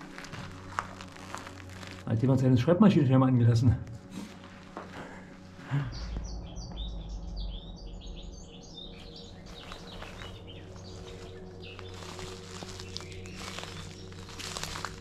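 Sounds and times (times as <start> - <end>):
faint clicks and rustles: 0.0 - 2.1, 9.0 - 15.0
small bird chirping: 6.0 - 15.0.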